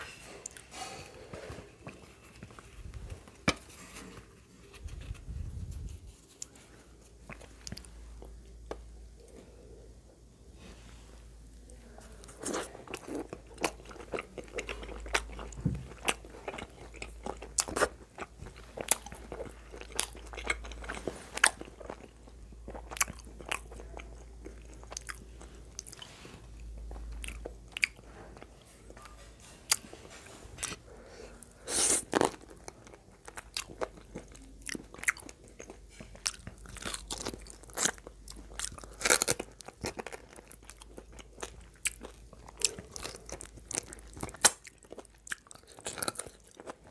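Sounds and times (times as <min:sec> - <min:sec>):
person chewing meat: 0:12.3 - 0:28.6, 0:31.4 - 0:46.9.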